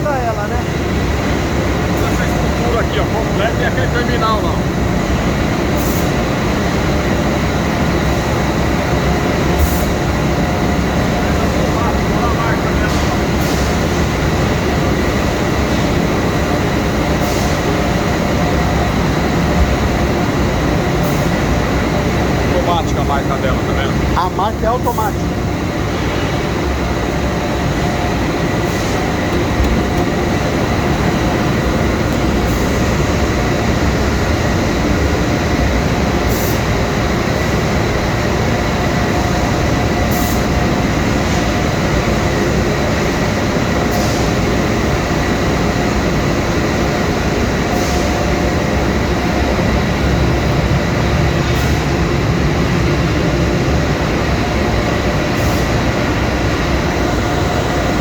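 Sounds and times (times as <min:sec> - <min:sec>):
machinery whining tones: 0:00.0 - 0:43.3
industrial machinery noise: 0:00.0 - 0:58.0.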